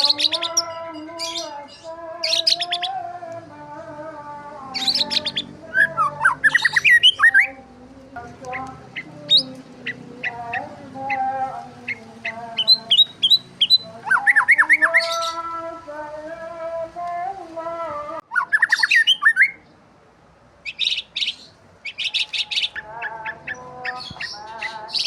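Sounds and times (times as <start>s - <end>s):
sustained background tone: 0.0s - 2.2s
small birds chirping: 0.0s - 3.1s, 4.5s - 15.8s, 18.2s - 19.8s, 20.6s - 25.0s.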